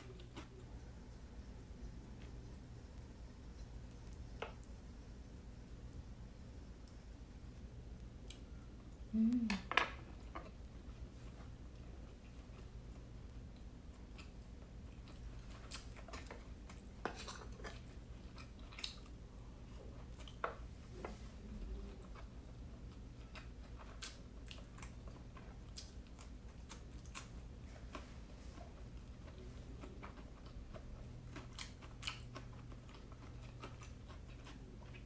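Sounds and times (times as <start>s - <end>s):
person chewing wet mouth sounds: 21.7s - 35.0s.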